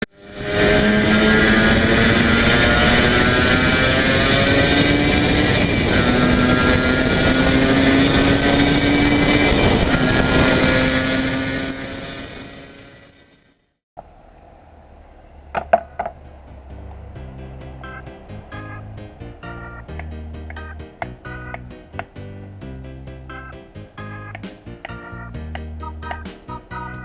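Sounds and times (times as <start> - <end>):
two-stroke engine at high revs: 0.2 - 13.1.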